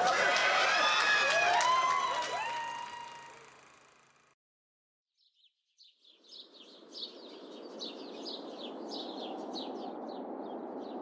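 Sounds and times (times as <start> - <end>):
birds chirping: 5.2 - 11.0.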